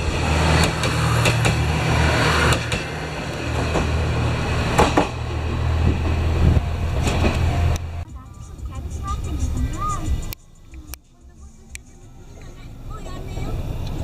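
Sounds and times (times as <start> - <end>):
train rumbling past: 0.0 - 14.0
train wheels clacking: 0.4 - 7.9.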